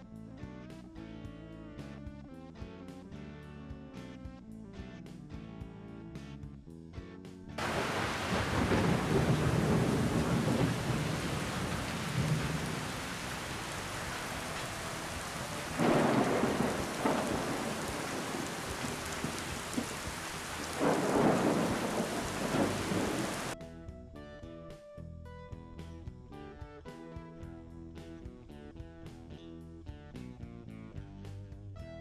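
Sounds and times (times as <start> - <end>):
heavy rain: 7.6 - 23.6
thunder rumbling: 7.6 - 23.6.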